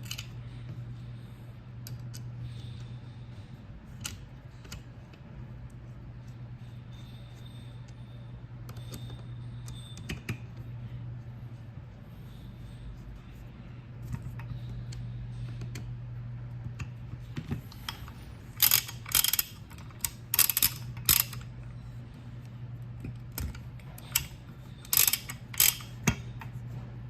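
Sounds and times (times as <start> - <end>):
steady low hum: 0.0 - 27.0
ratchet wrench clicking: 17.7 - 21.5, 23.3 - 26.2.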